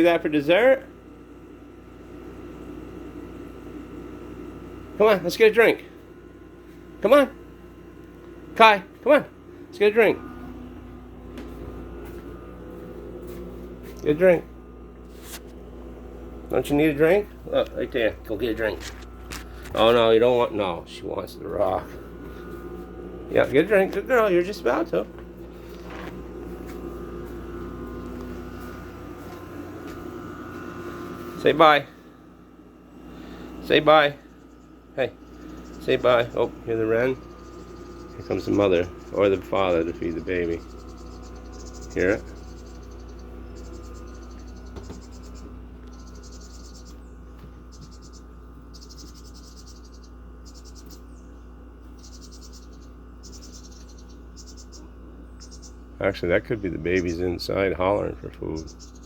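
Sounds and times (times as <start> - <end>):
motor droning: 0.0 - 59.0
nestlings begging trills: 0.0 - 59.0
steady low hum: 0.0 - 59.0.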